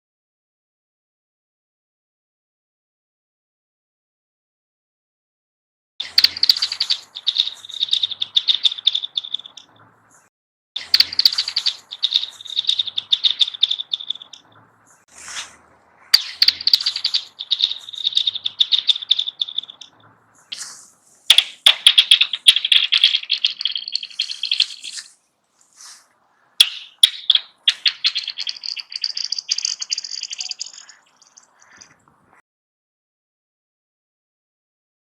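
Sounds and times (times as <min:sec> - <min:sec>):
metallic pinging of stone on ice: 0:21.3 - 0:25.2, 0:26.6 - 0:32.0
stone clicking on ice: 0:21.3 - 0:25.2.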